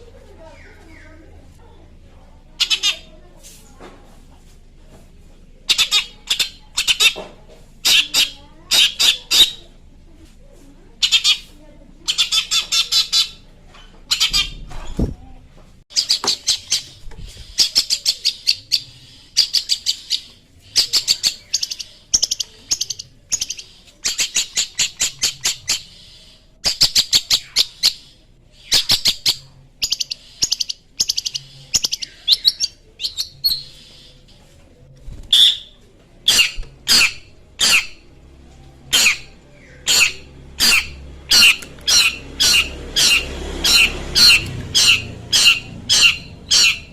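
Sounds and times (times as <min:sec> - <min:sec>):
bird singing harsh chattering notes: 0:02.6 - 0:03.1, 0:05.7 - 0:07.2, 0:07.8 - 0:09.7, 0:11.0 - 0:15.1, 0:15.9 - 0:34.4, 0:35.1 - 0:38.1, 0:38.9 - 0:46.9.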